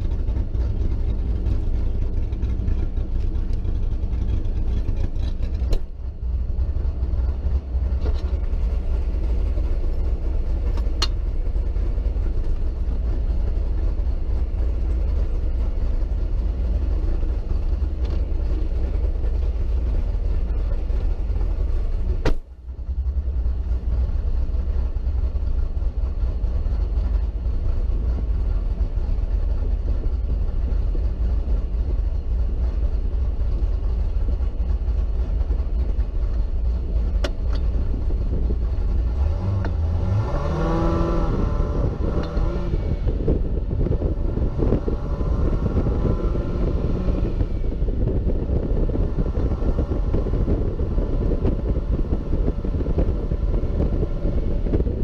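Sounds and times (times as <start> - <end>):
car engine rumbling: 0.0 - 55.0
engine revving as car pulls away: 39.0 - 55.0.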